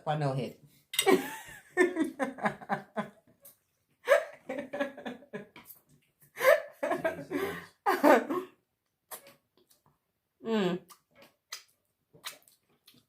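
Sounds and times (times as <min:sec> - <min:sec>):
people laughing: 0:01.1 - 0:03.0, 0:06.4 - 0:08.4.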